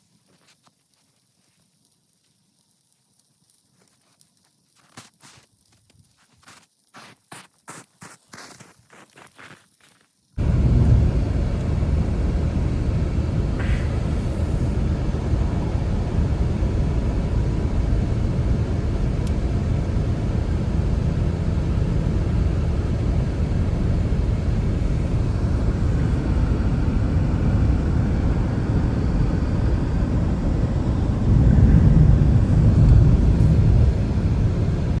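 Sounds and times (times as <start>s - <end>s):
wind buffeting microphone: 10.4s - 35.0s.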